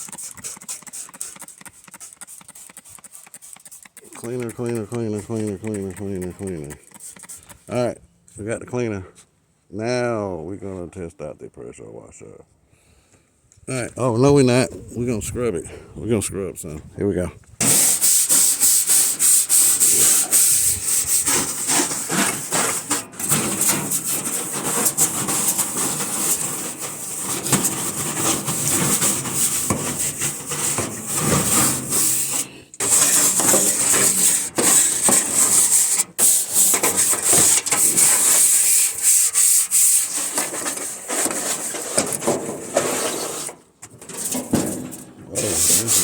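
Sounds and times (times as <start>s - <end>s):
scrubbing a surface by hand: 0.0s - 7.7s, 17.6s - 43.6s, 45.4s - 46.0s.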